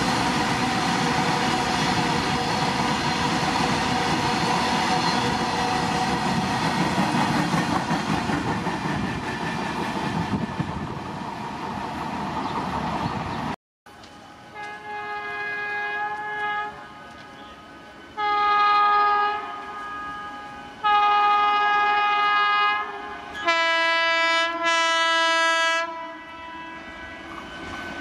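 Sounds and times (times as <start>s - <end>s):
train wheels rumbling on rails: 0.0s - 14.9s, 26.7s - 28.0s
locomotive horn chord: 14.5s - 27.5s.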